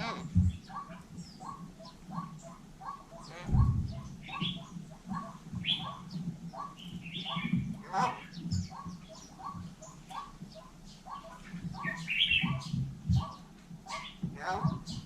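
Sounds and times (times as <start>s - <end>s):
myna bird calling: 0.0s - 15.0s
bird squawks and whistles: 0.7s - 6.0s.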